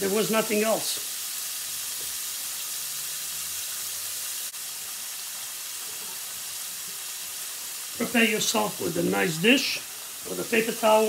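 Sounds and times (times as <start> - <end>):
fish frying in hot oil: 0.0 - 11.0.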